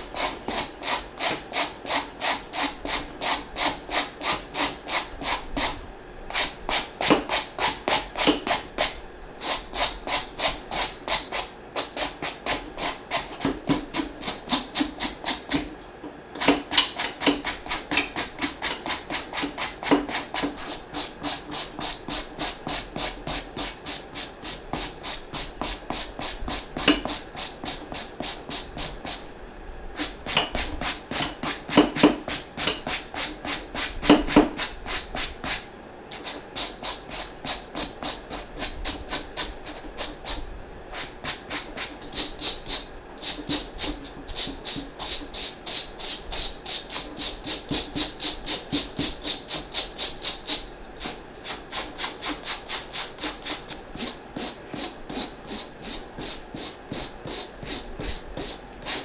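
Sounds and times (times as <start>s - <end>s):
brush scrubbing suede: 41.0s - 59.0s.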